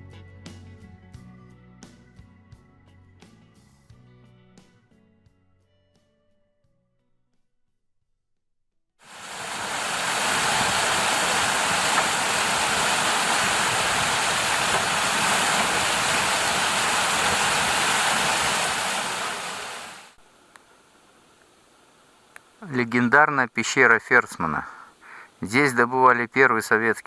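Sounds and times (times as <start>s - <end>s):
river water rushing: 9.1s - 20.2s.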